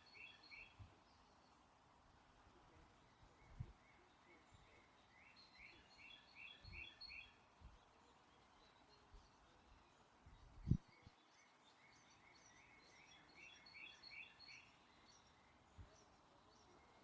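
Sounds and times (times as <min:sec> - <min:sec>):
wind bumps on microphone: 0:10.6 - 0:10.8.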